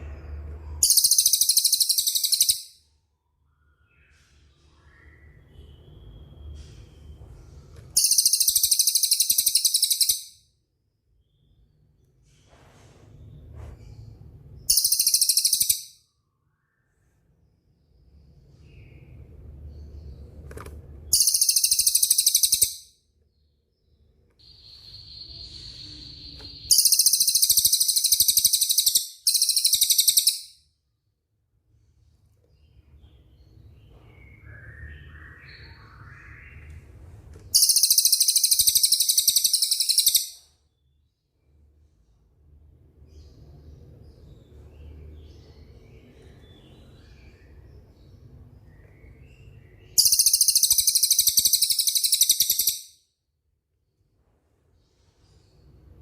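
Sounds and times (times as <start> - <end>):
faint bird chirps: 0.0 - 31.0, 31.8 - 42.2, 42.9 - 54.1
songbird whistle and trill: 0.8 - 2.7, 37.6 - 40.4, 50.0 - 52.8.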